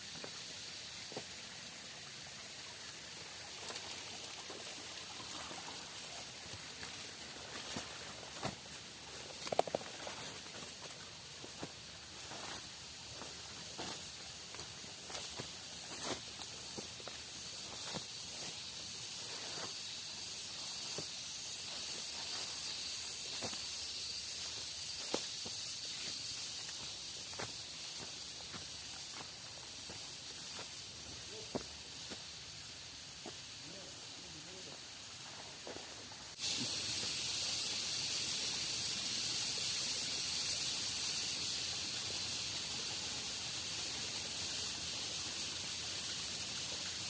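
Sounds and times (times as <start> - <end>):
high-pitched insect buzz: 0.0 - 47.0
steady hiss of water: 0.0 - 47.0.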